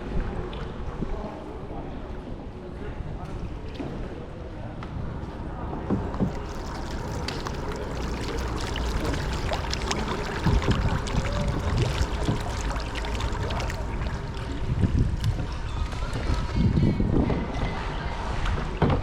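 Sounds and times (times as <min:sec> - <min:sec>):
low steady rumble: 0:05.0 - 0:17.1
paddles dipping and dripping: 0:06.0 - 0:16.7
water splashing and trickling: 0:06.1 - 0:17.1.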